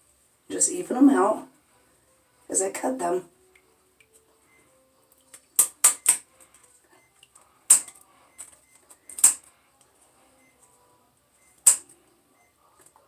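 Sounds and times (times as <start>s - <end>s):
scissors snipping feathers: 11.6s - 11.8s.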